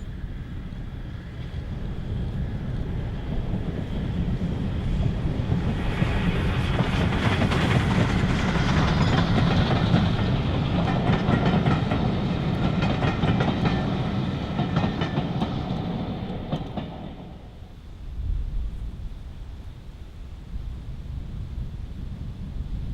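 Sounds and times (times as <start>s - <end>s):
train wheels clicking over rail joints: 1.4s - 17.7s.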